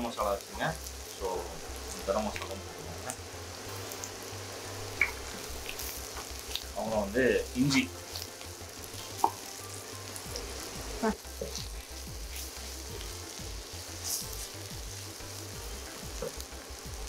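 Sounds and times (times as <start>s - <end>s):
shallots and chillies sizzling in oil: 0.0s - 17.0s.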